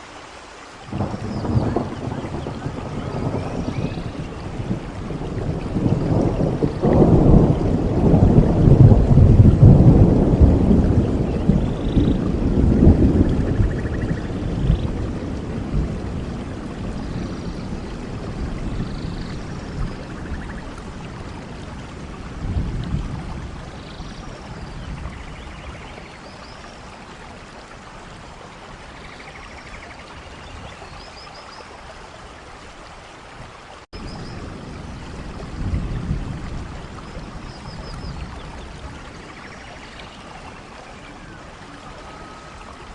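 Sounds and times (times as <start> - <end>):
steady rain: 0.0 - 42.9
gusty wind: 0.8 - 31.1, 33.4 - 42.9
birds chirping: 0.9 - 4.7, 11.1 - 15.0.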